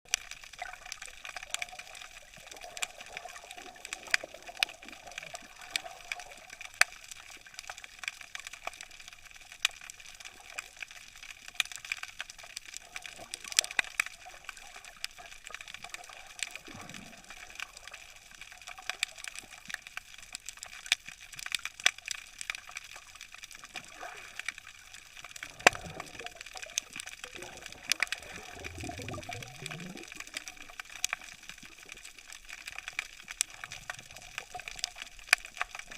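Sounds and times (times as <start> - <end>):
low water swishes: 25.3 - 30.7.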